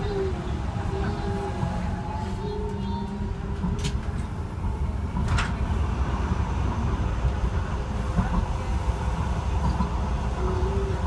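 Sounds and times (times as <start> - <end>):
train interior rumble: 0.0 - 11.0.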